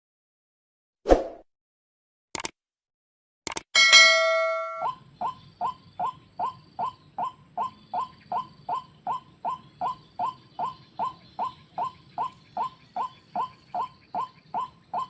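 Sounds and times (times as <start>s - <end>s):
ringing metallic clang: 3.8s - 4.9s.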